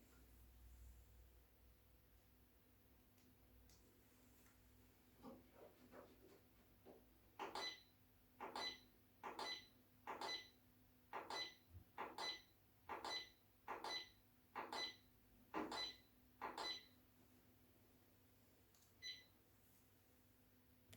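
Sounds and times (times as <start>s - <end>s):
short beeps with clicks: 7.4s - 10.6s, 11.2s - 15.1s, 15.7s - 17.0s, 19.0s - 19.3s.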